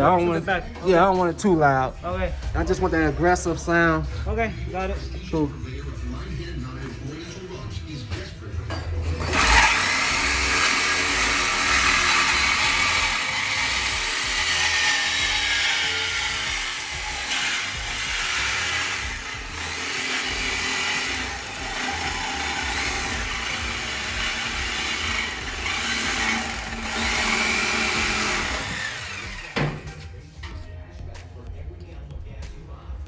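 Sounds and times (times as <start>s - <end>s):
power tool running: 9.0s - 30.0s.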